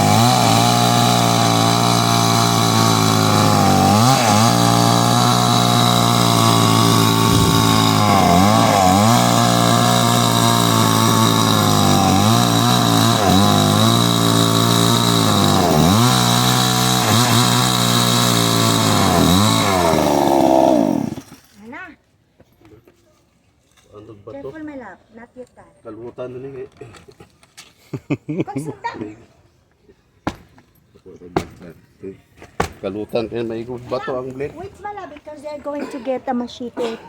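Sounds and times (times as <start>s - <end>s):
chainsaw cutting wood: 0.0s - 21.7s.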